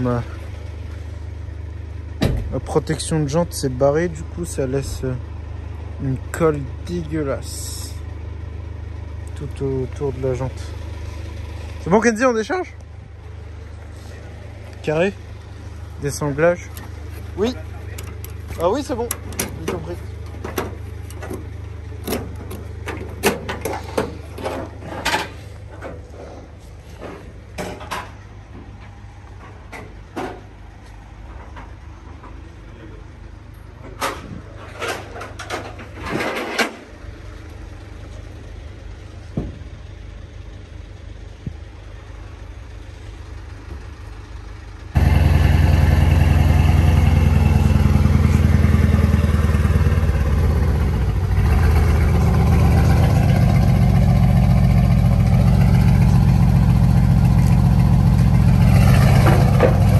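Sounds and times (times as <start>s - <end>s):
low engine hum: 0.0s - 59.9s
car engine running loudly: 13.9s - 25.9s, 44.9s - 59.9s.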